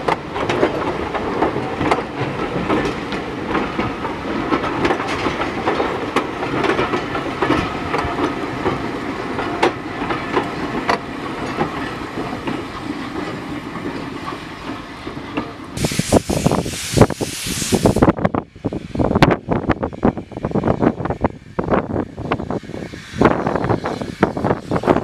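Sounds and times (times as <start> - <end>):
train wheels clicking over rail joints: 0.0 - 18.2
wind buffeting microphone: 15.8 - 25.0.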